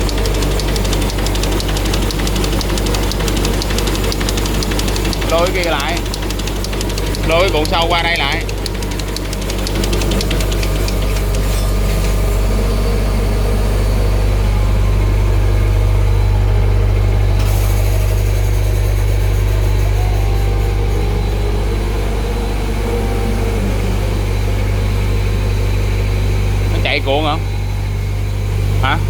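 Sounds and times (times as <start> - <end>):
machine humming and rumbling: 0.0 - 29.0.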